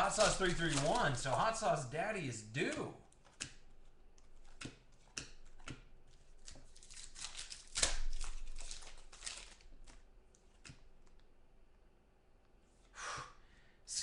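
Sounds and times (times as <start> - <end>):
cards clicking and snapping: 0.0 - 1.8, 2.6 - 11.3
card pack wrapper crinkling: 0.0 - 11.2.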